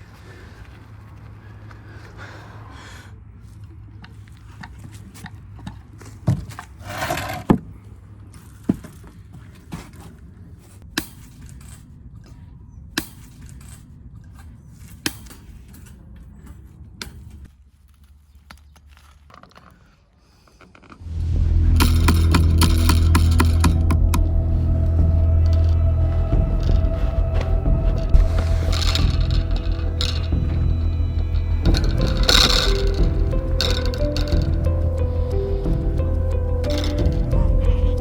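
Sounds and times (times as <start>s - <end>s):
low steady hum: 21.0s - 38.0s
loud music: 21.1s - 38.0s.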